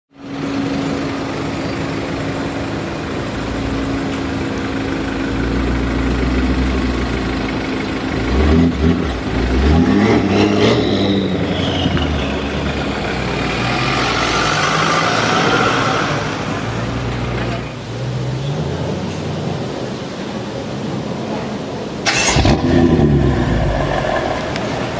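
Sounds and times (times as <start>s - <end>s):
city traffic noise: 0.1s - 24.9s
car engine accelerating hard: 8.0s - 16.9s, 22.1s - 24.9s.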